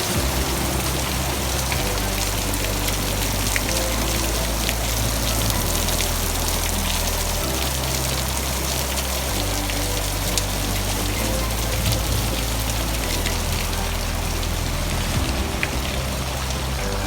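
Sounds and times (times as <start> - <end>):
heavy rain hissing: 0.0 - 17.0
raindrops ticking on surfaces: 0.0 - 17.0.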